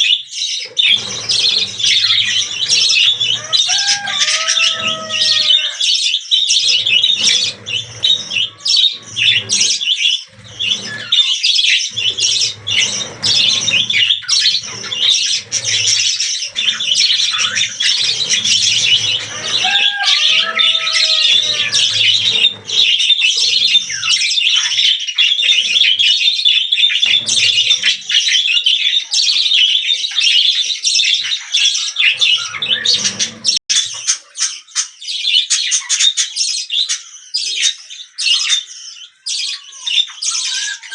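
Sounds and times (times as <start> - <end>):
budgerigars chattering: 0.4 - 24.2.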